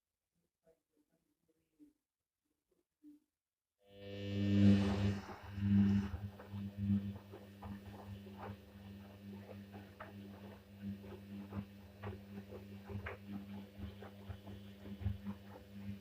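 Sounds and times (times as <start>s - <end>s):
washing machine hum: 3.9s - 16.0s.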